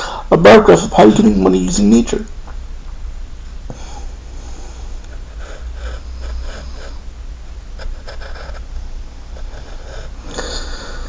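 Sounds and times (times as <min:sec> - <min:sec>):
low hum: 0:00.0 - 0:11.0
person breathing and sniffing: 0:03.7 - 0:07.1, 0:07.9 - 0:11.0.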